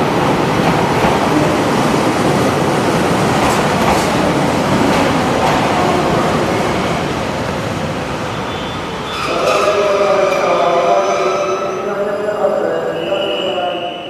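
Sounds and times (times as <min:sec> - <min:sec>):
passenger train rumbling on rails: 0:00.0 - 0:14.0.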